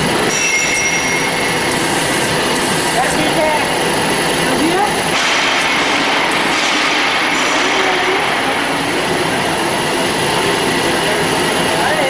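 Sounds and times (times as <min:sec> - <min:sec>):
band saw running with whine: 0:00.0 - 0:12.0.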